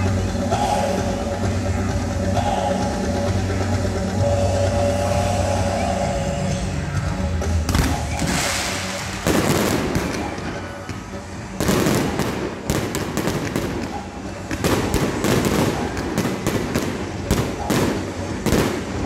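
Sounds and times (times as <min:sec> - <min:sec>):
fireworks bangs with crackle: 0:07.7 - 0:19.0.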